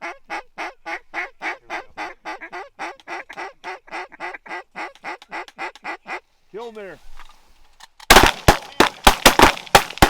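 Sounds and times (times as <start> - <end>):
duck quacking rapidly: 0.0 - 6.2.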